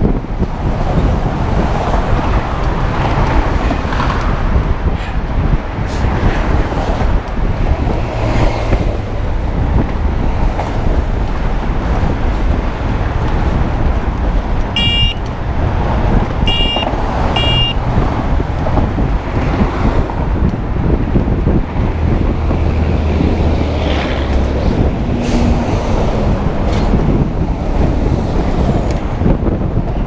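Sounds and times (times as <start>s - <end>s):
road traffic: 0.0s - 30.0s
wind rushing over microphone: 0.0s - 30.0s
vehicle horn beeping: 14.8s - 15.3s, 16.4s - 17.8s.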